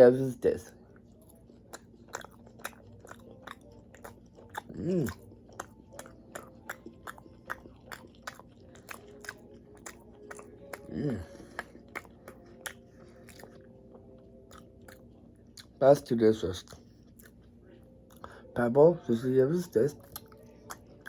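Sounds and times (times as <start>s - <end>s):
person chewing with wet clicks: 0.5s - 15.8s, 16.6s - 18.5s, 19.6s - 21.0s
person humming: 4.7s - 5.3s, 10.7s - 11.7s.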